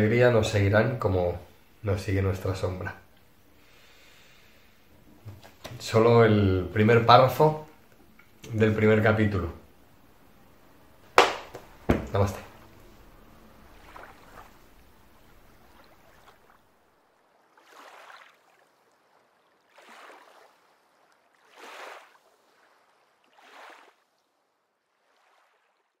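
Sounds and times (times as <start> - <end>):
faint room hiss: 0.0 - 17.3.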